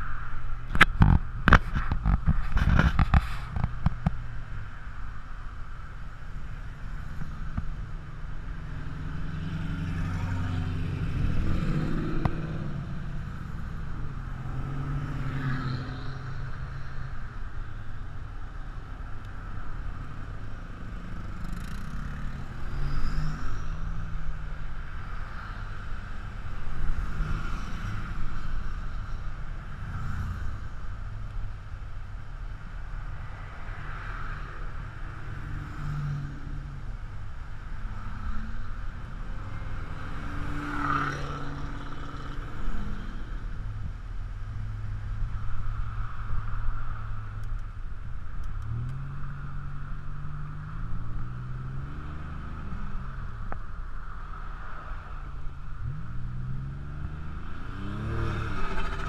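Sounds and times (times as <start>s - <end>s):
cars driving past: 0.0s - 59.0s.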